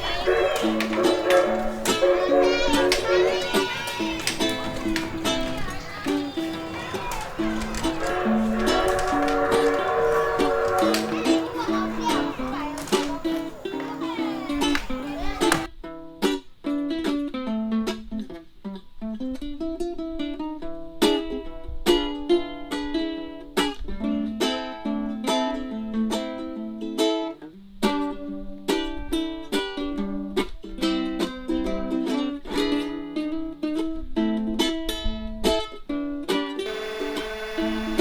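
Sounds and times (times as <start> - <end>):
ukulele music: 0.0 - 18.2, 36.7 - 38.0.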